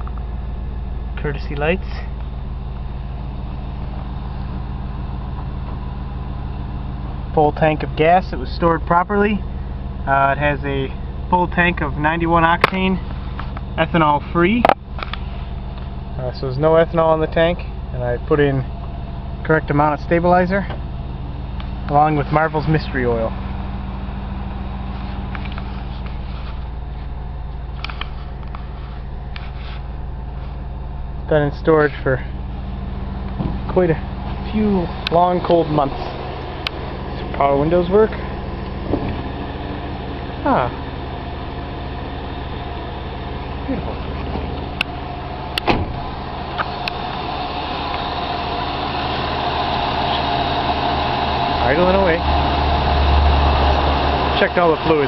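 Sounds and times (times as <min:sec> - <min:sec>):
engine idling: 0:00.0 - 0:55.0
loud thump: 0:33.3 - 0:33.8, 0:38.8 - 0:39.3, 0:45.6 - 0:46.1.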